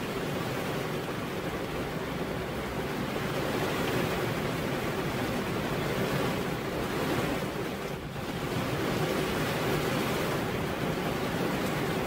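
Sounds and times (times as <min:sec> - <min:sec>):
heavy rain on a roof: 0:00.0 - 0:12.0.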